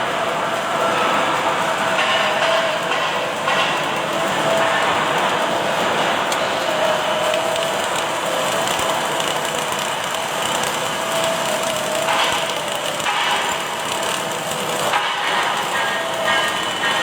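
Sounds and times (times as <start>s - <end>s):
welding machine hissing: 0.0s - 17.0s.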